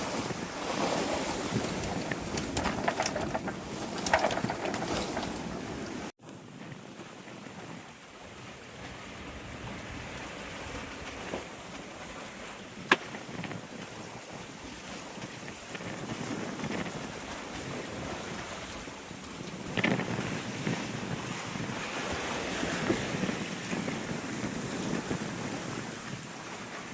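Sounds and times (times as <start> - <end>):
wind and sea rushing: 0.0 - 26.9.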